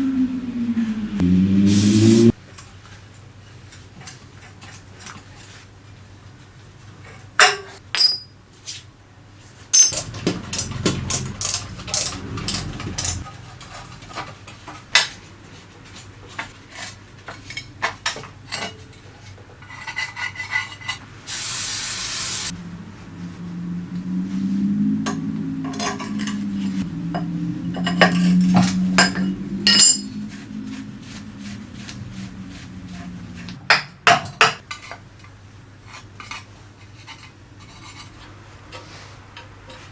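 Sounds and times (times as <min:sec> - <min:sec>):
low wavering hum: 0:00.0 - 0:02.4, 0:10.0 - 0:13.3, 0:22.5 - 0:33.6
metal tools clinking and knocking: 0:07.4 - 0:08.4, 0:09.8 - 0:14.6, 0:25.1 - 0:26.8, 0:27.7 - 0:30.3
short hiss: 0:21.3 - 0:22.5.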